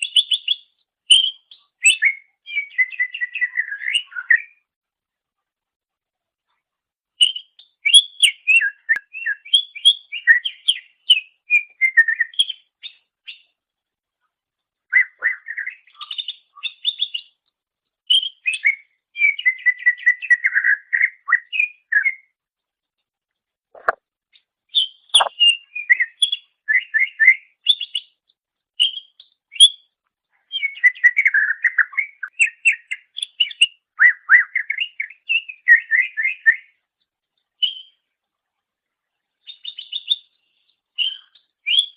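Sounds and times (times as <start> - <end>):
bird singing chirps and whistles: 0.0 - 4.6, 7.2 - 13.5, 14.9 - 17.4, 18.1 - 22.3, 24.7 - 28.2, 28.8 - 36.8, 37.6 - 38.0, 39.4 - 40.4, 41.0 - 41.9.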